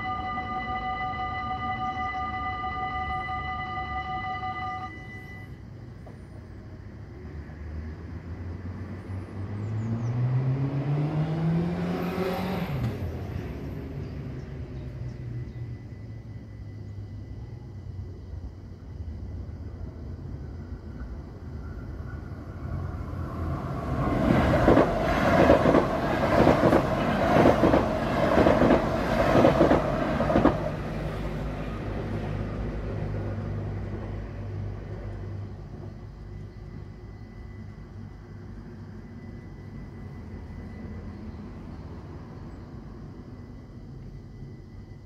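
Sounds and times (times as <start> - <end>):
train rumble: 0.0 - 45.0
train wheels clattering over rails: 23.7 - 31.2.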